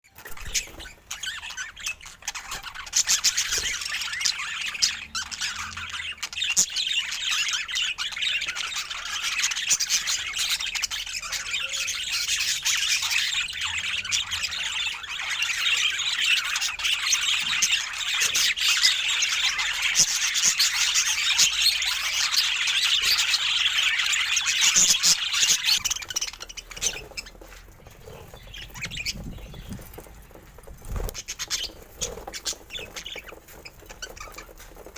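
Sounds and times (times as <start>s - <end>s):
budgerigars chattering: 0.3s - 34.9s.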